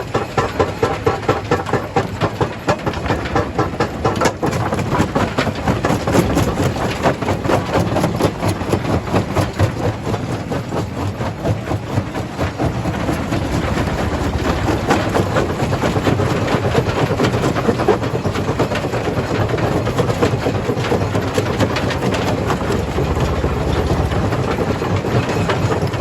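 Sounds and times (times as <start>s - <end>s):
rock crushing clatter and grinding: 0.1s - 26.0s
machine drone: 11.1s - 19.4s, 21.4s - 26.0s.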